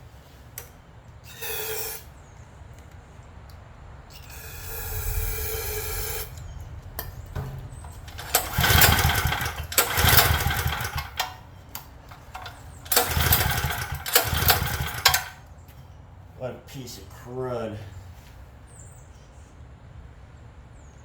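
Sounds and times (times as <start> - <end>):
generator engine pull-start cranking: 1.3 - 2.1, 4.1 - 15.4.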